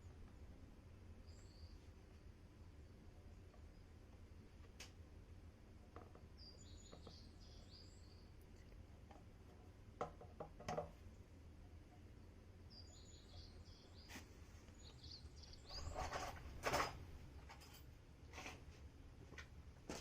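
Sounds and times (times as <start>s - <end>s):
low steady background hum: 0.0s - 20.0s
faint bird chirps: 1.2s - 4.0s, 6.3s - 8.8s, 12.2s - 16.3s.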